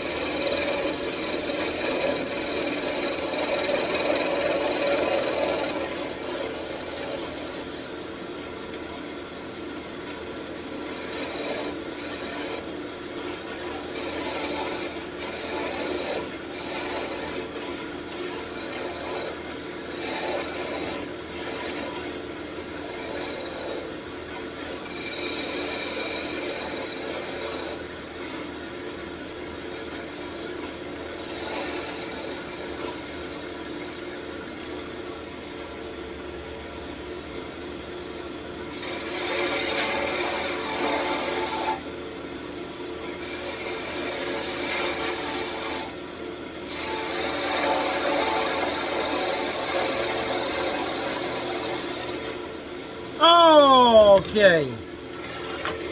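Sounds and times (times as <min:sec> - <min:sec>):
lathe motor hum: 0:00.0 - 0:07.9
lathe tool scraping wood: 0:00.0 - 0:07.9, 0:10.7 - 0:12.7, 0:13.8 - 0:17.4, 0:18.4 - 0:21.9, 0:22.8 - 0:23.9, 0:24.8 - 0:27.8, 0:31.2 - 0:33.4.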